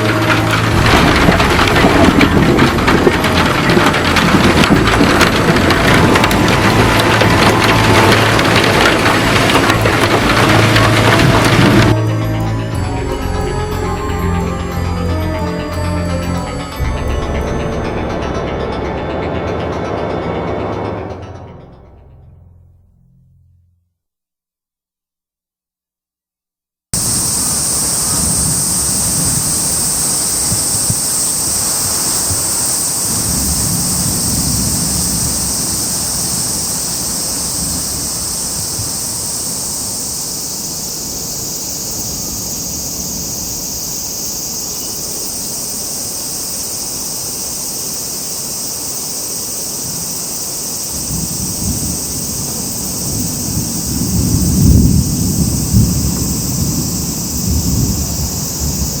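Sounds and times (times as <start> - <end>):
low rumbling wind gusts: 0.0 - 12.0, 27.0 - 46.6, 49.8 - 59.0
wind and rain storm hiss: 0.0 - 12.0, 27.0 - 59.0.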